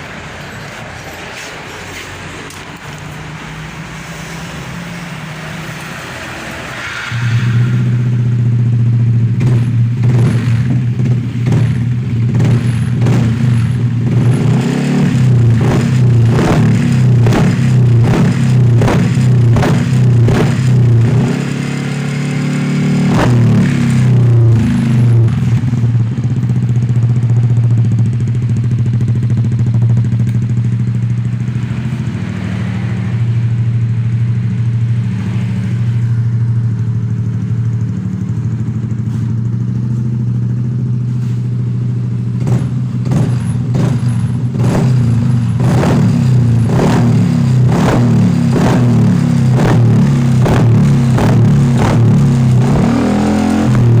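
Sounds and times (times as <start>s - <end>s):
motorcycle exhaust note: 3.6s - 54.0s
motorcycle throttle blips: 22.5s - 54.0s.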